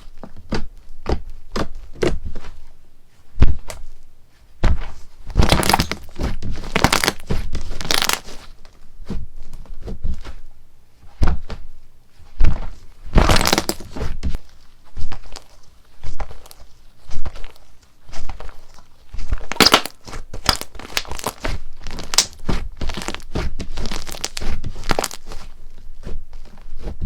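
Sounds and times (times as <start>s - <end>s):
slime crackling: 5.3s - 8.4s, 13.1s - 14.0s, 18.5s - 25.5s
slime popping and clicking: 19.5s - 21.4s, 22.0s - 22.4s.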